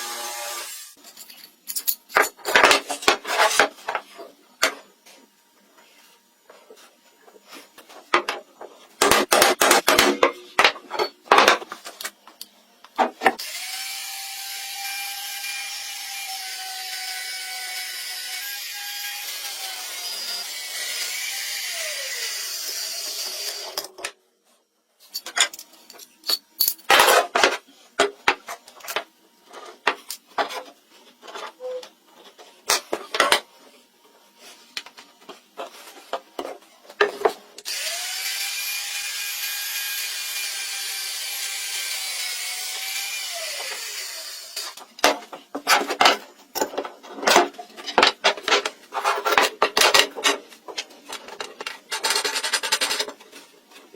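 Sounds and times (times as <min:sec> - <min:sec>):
power tool running: 0:00.0 - 0:01.0, 0:13.4 - 0:23.8, 0:37.6 - 0:44.7.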